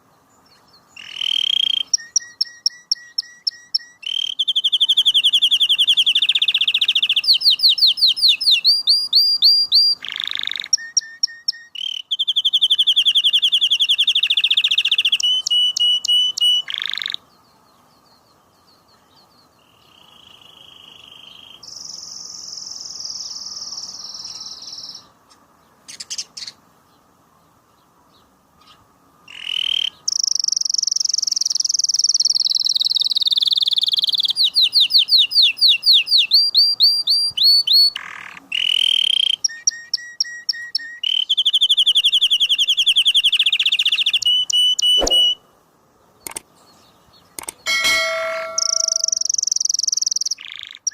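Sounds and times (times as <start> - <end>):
canary singing trills: 0.0 - 25.1, 28.2 - 45.5, 46.1 - 50.9.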